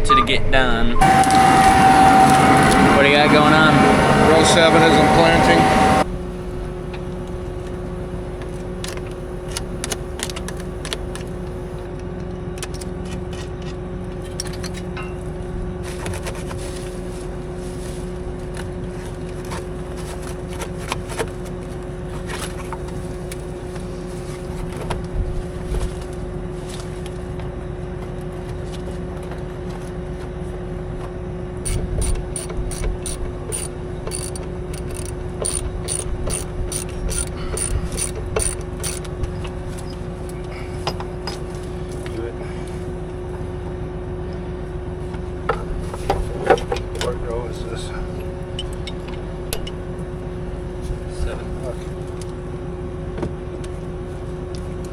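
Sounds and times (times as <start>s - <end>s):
tractor engine idling: 1.0s - 11.9s
ratchet wrench clicks: 31.7s - 39.1s
hand tools scraping and clicking: 31.7s - 39.9s.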